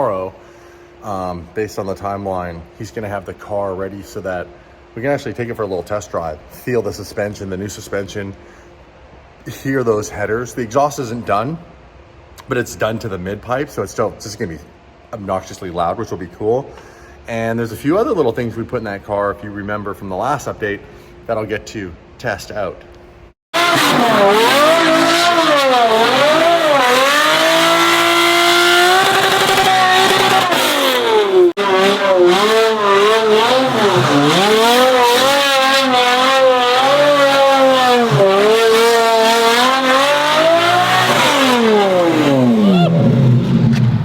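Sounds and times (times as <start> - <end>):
car engine revving: 23.6 - 44.0.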